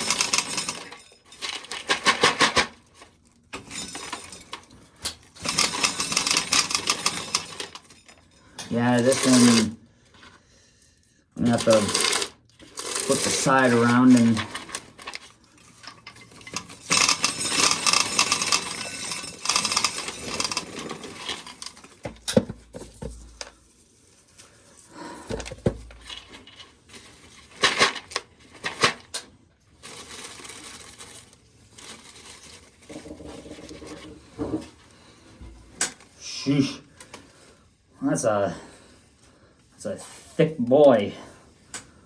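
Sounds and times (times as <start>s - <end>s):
corn kernels scraping and rattling: 0.0s - 9.8s, 11.4s - 22.1s, 25.4s - 34.8s
rustling: 29.7s - 34.9s.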